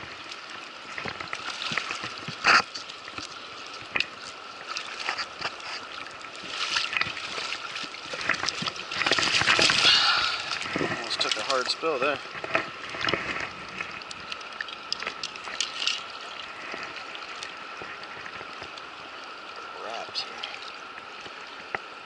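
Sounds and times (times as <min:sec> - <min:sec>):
river water running: 0:00.0 - 0:22.0
fish splashing at the surface: 0:04.2 - 0:11.8.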